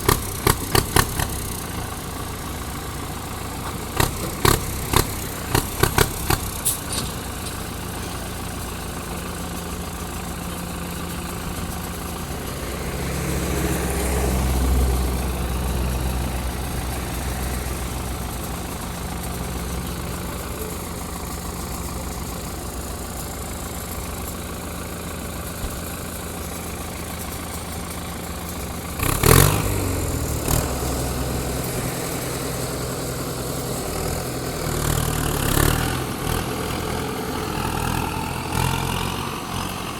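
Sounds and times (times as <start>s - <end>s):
diesel engine running: 0.0s - 39.9s
metallic knocks and clanks: 3.6s - 8.5s.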